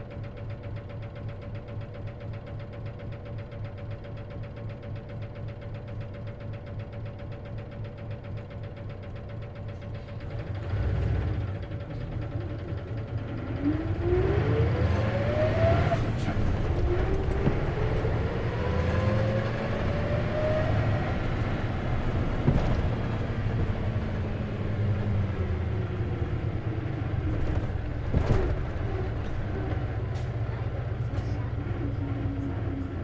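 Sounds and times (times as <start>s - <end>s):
bus engine accelerating: 9.6s - 33.0s
rising gear whine: 13.3s - 27.1s.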